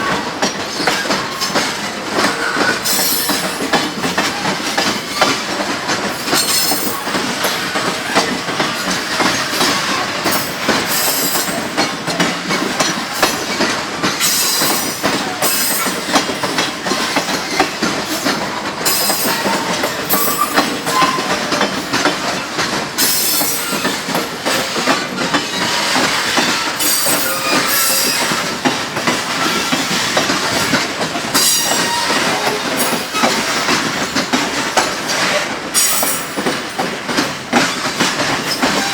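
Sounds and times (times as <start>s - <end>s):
train wheels clattering on rails: 0.0s - 38.9s
high-pitched wheel squeal: 26.8s - 28.4s.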